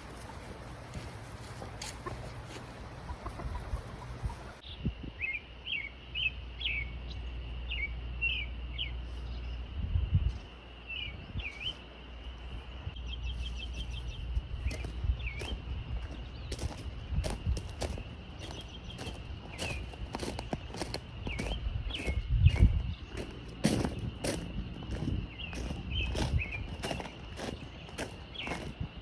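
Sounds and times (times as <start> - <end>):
small birds chirping: 0.0 - 29.0
bird trill: 13.0 - 28.9
low rumble: 14.0 - 28.1.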